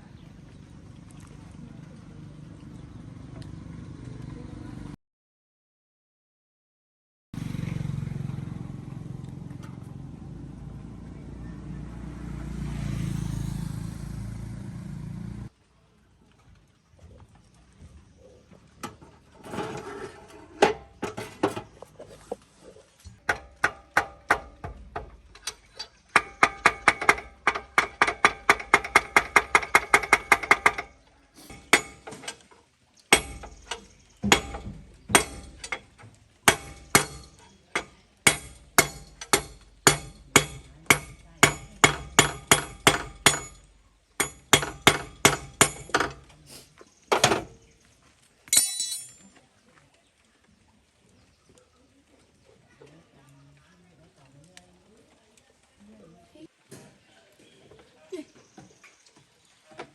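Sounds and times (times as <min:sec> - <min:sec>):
hammer striking metal: 0:31.5 - 0:32.2, 0:33.1 - 0:33.6, 0:34.3 - 0:35.7, 0:36.5 - 0:46.1.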